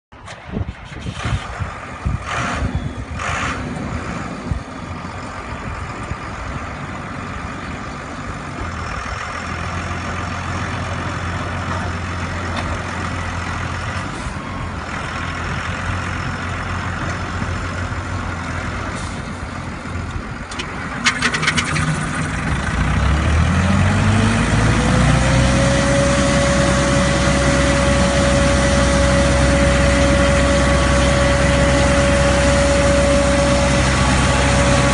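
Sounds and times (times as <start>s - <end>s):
street sweeper truck running: 0.1s - 34.9s
blower engine whining: 20.1s - 34.9s.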